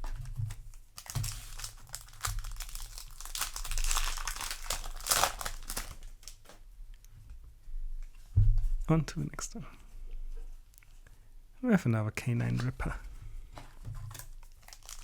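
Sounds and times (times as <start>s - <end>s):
foil wrapper crinkling: 0.0s - 6.6s, 14.0s - 15.0s.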